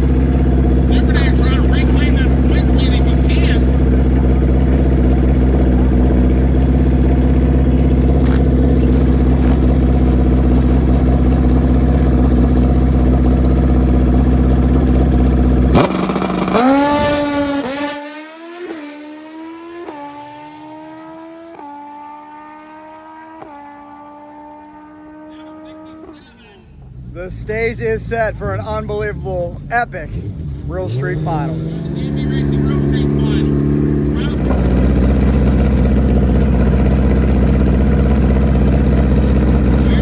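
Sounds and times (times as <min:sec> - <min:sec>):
motorcycle shifting gears: 0:00.0 - 0:19.0, 0:30.2 - 0:40.0
motorcycle engine revving: 0:00.0 - 0:40.0.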